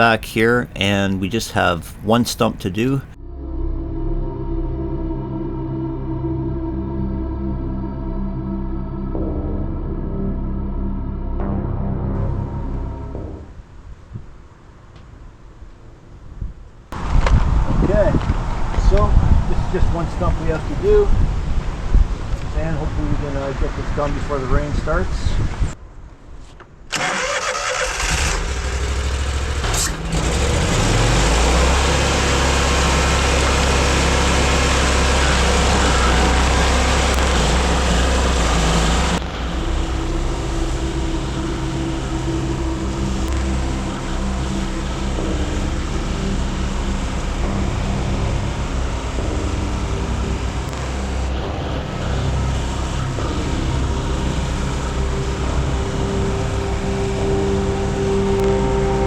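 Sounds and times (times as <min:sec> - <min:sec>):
stump grinder engine: 0:28.1 - 0:39.2
cutter wheel grinding stump: 0:29.5 - 0:39.2.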